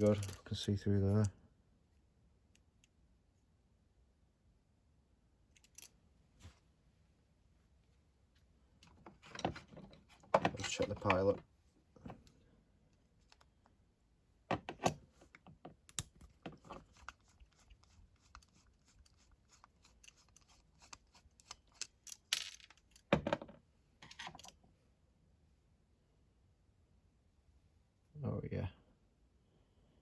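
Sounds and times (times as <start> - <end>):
metal clicks and taps of tools: 15.8 - 16.6.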